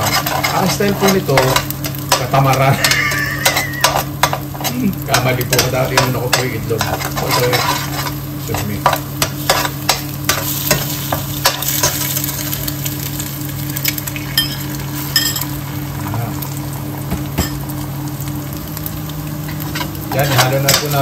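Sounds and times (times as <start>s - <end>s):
metal spoon scraping a pan: 0.0s - 12.4s, 19.5s - 21.0s
food sizzling in hot oil: 0.0s - 21.0s
steady low hum: 0.0s - 21.0s.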